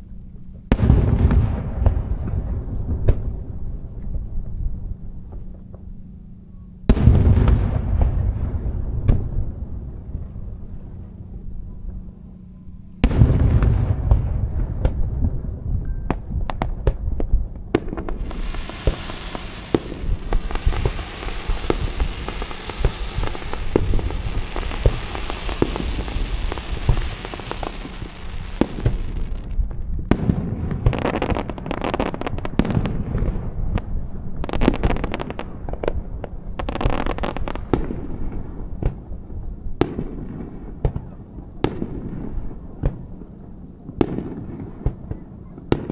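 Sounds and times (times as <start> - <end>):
fireworks bangs: 0.7 - 4.5, 6.9 - 10.5, 13.0 - 39.1
fireworks hiss: 17.8 - 39.0.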